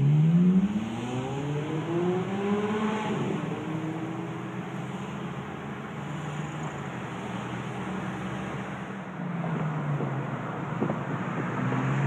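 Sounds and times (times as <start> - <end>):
car engine accelerating: 0.0 - 5.4
road noise: 0.0 - 12.0.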